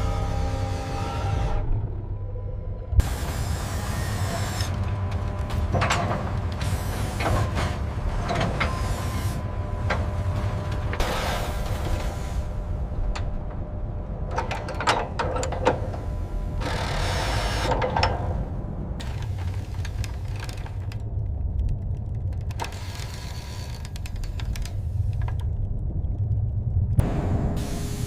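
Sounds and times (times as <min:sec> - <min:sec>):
machinery rumble: 0:00.0 - 0:28.0
mechanical clicks and clanks: 0:03.0 - 0:26.3
hiss bursts: 0:27.6 - 0:28.0.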